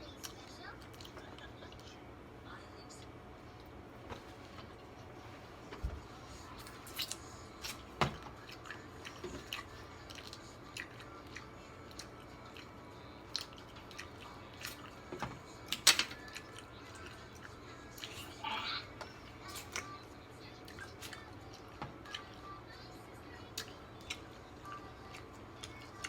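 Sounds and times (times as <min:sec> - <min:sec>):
chewing seafood: 0:06.6 - 0:22.8, 0:23.4 - 0:26.0.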